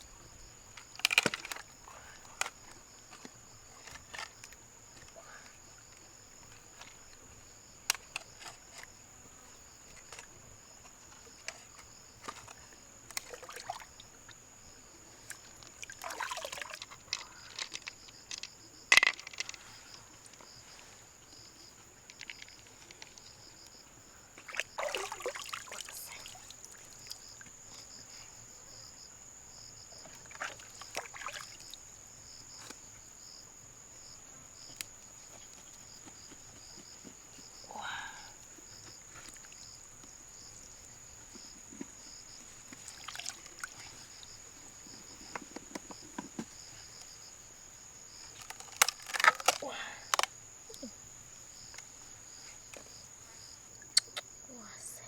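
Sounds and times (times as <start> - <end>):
water splashing and trickling: 9.9 - 14.4, 15.1 - 20.9, 24.4 - 27.8, 30.0 - 31.9, 42.4 - 45.4.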